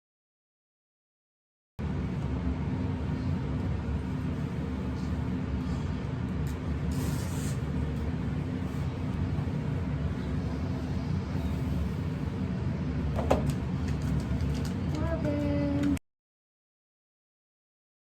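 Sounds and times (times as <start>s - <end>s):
steady low hum: 1.8s - 16.0s
short hiss: 6.9s - 7.7s.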